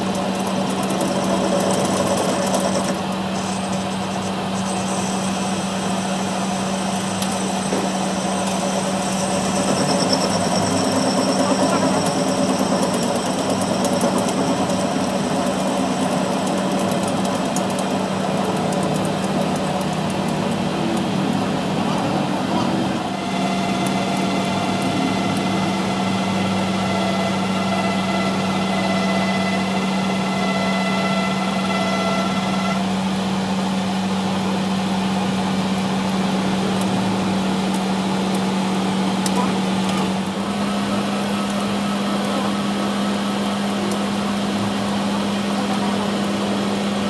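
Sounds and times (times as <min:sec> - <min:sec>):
higher machine whine: 0:00.0 - 0:46.9
machine low hum: 0:00.0 - 0:47.0.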